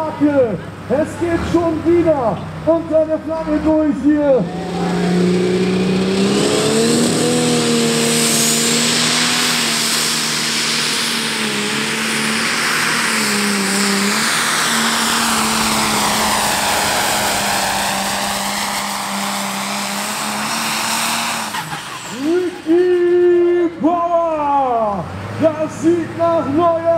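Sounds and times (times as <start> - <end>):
diesel engine droning at full load: 0.0 - 26.9
heavy rushing hiss: 5.2 - 22.8.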